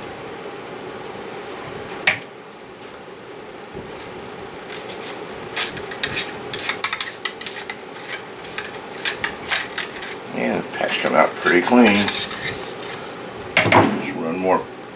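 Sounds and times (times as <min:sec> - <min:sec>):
cleaning rod scraping through barrel: 0:04.7 - 0:13.1.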